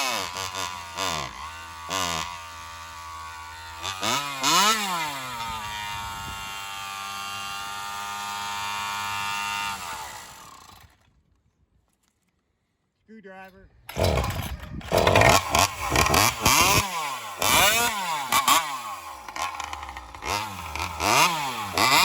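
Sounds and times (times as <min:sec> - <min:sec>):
chainsaw revving and idling: 0:00.0 - 0:11.0, 0:13.9 - 0:22.0.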